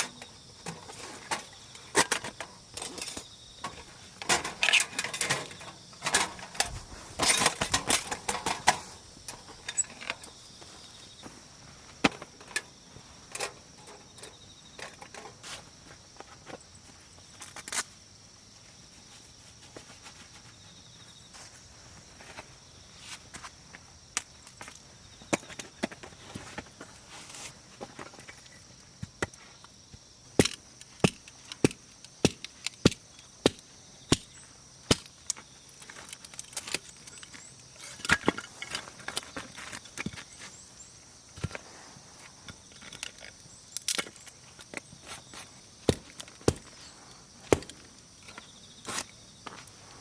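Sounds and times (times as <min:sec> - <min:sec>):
wood being chopped: 0:45.9 - 0:46.8, 0:47.4 - 0:47.8.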